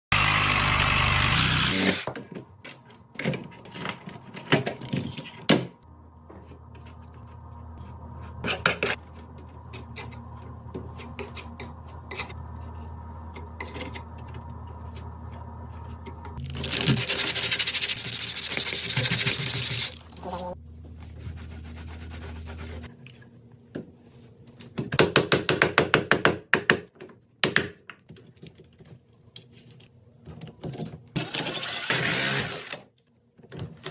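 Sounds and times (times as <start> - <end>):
steady low hum: 5.8 - 16.4.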